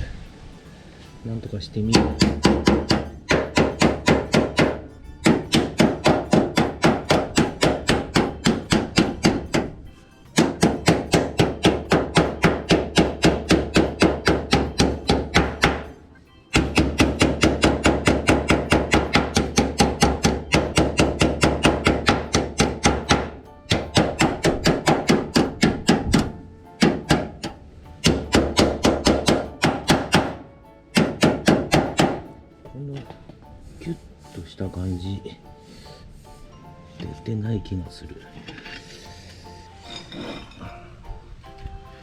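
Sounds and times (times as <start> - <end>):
hammer striking sheet steel: 1.8 - 32.4.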